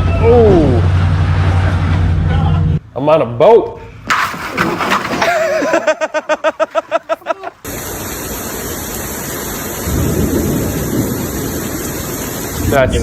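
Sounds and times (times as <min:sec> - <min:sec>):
storm wind and driving rain: 0:07.7 - 0:13.0.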